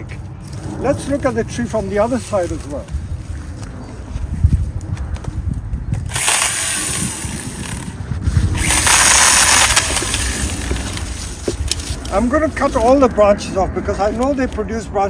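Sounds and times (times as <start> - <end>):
camera handling thuds and rumble: 6.9 - 12.2.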